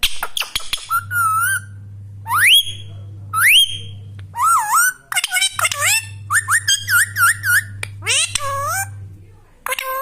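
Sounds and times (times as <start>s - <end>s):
parrot wavering call: 4.4s - 9.0s.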